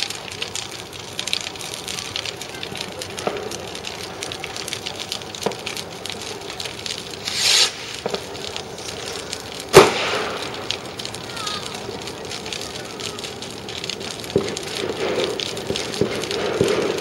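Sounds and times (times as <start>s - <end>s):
fireworks crackling pops: 0.0s - 17.0s
firework hissing rush: 3.1s - 17.0s
loud firework bang: 7.2s - 8.3s, 9.7s - 10.7s.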